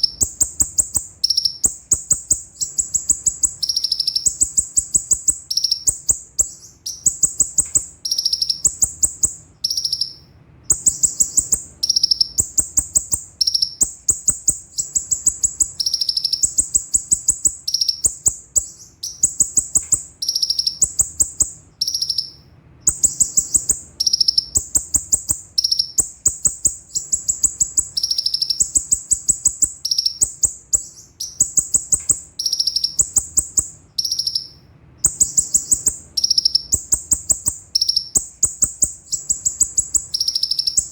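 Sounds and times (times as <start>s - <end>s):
sunbird singing trills: 0.0s - 40.9s.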